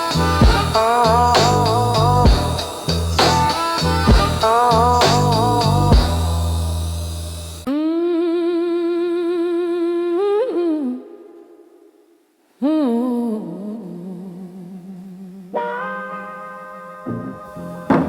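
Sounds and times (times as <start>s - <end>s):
person humming blues: 0.0s - 6.3s.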